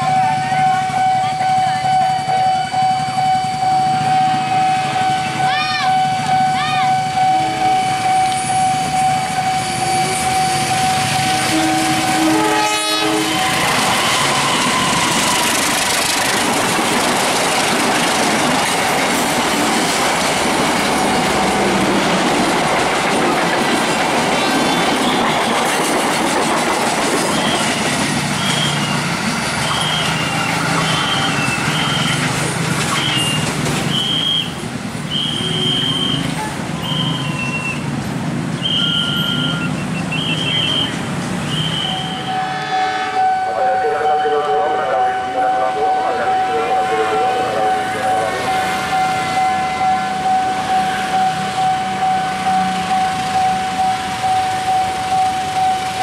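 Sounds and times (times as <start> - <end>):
train horn: 0.0 - 15.4, 41.6 - 50.0
train wheels rushing on rails: 0.0 - 56.0.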